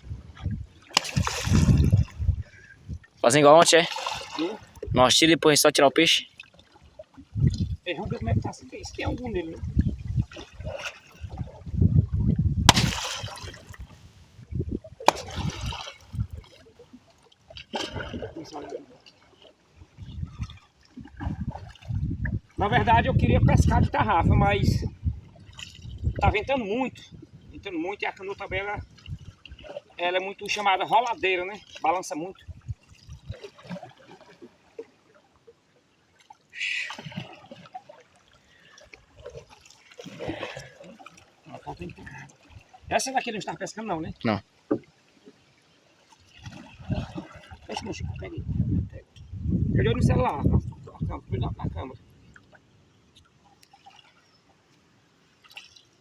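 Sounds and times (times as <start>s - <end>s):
wind buffeting microphone: 0.0s - 3.2s, 7.2s - 16.6s, 19.8s - 27.8s, 28.4s - 29.7s, 32.4s - 33.4s, 46.5s - 52.0s
water splashing and trickling: 0.0s - 56.0s
short loud splash: 12.6s - 13.8s, 15.0s - 16.1s.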